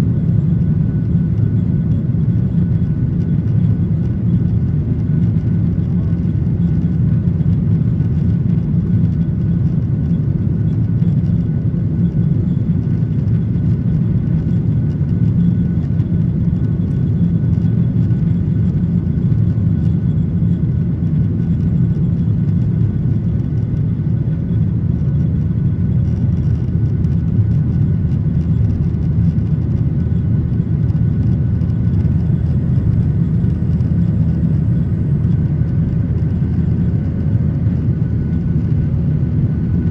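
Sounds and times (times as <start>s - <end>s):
airliner cabin low rumble: 0.0s - 39.9s
faint steady tones: 9.0s - 39.8s.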